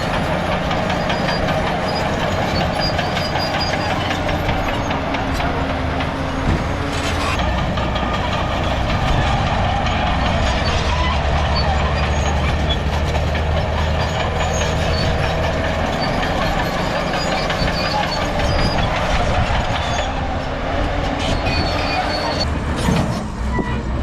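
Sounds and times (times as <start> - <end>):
bulldozer diesel engine running: 0.0 - 24.0
steel crawler tracks clattering: 0.0 - 24.0.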